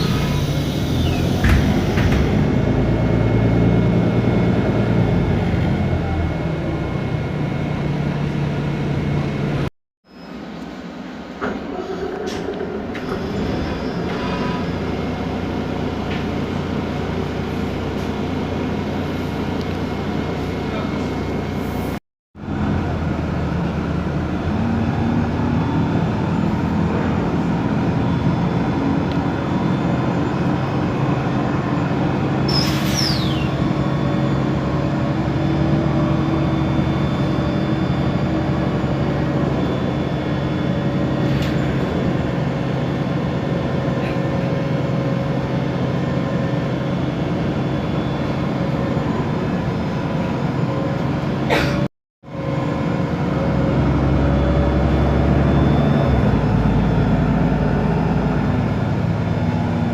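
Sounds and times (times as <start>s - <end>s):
bus diesel engine running: 0.0s - 59.9s
high squeal falling in pitch: 32.4s - 41.8s.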